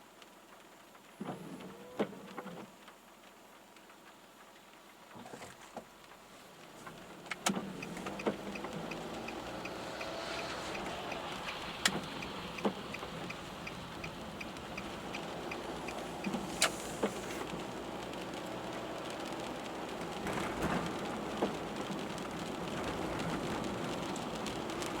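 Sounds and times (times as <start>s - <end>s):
tyres and rain rushing: 5.9s - 25.0s
turn signal ticking: 6.6s - 25.0s.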